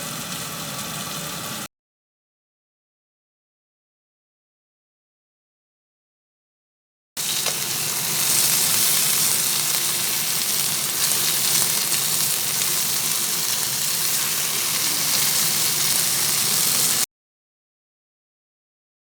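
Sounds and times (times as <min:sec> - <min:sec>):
food sizzling in a pan: 0:07.2 - 0:17.1.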